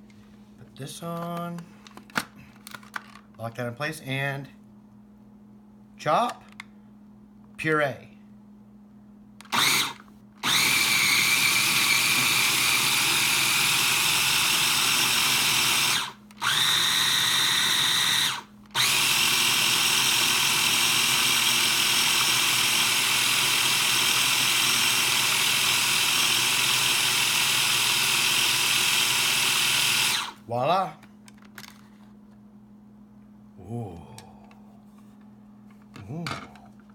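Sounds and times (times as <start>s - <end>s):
blender motor running: 9.5s - 30.4s.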